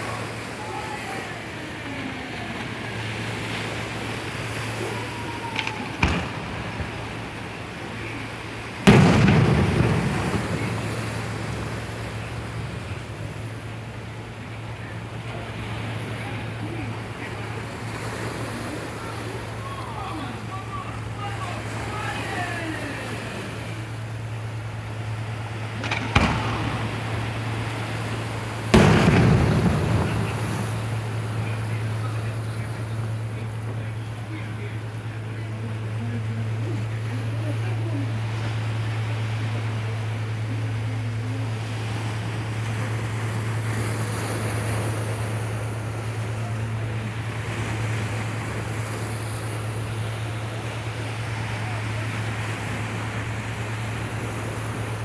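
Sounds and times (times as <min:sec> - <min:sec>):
steady low hum: 0:00.0 - 0:55.0
loud bang with rumble: 0:04.8 - 0:19.7, 0:23.0 - 0:36.0
short crack: 0:05.4 - 0:14.2, 0:25.7 - 0:33.9
cannon firing blank: 0:05.6 - 0:19.5, 0:23.4 - 0:35.1.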